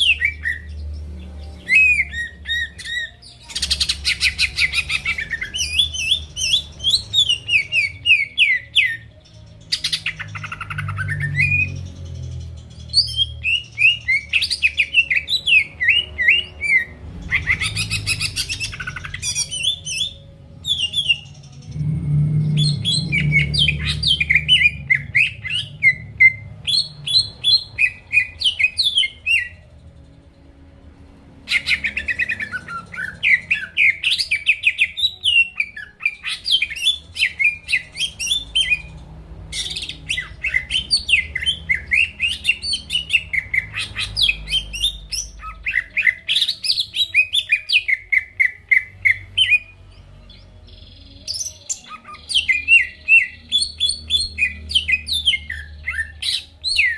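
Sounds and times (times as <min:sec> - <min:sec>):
bird singing whistled notes: 0:00.0 - 0:29.6, 0:31.5 - 0:38.9, 0:50.4 - 0:56.9.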